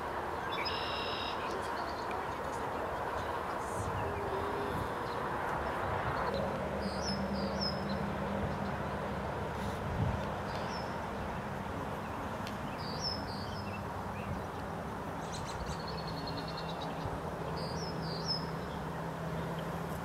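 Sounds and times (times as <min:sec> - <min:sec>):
bird trill: 0:00.5 - 0:02.0.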